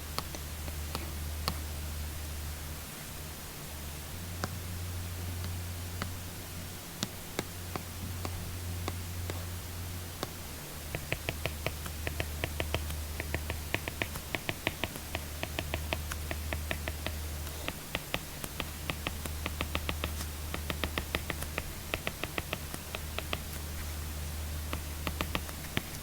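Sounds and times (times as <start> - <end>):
steady low hum: 0.0 - 26.0
stylus tapping on tablet screen: 0.1 - 1.6, 7.0 - 9.5, 10.2 - 26.0.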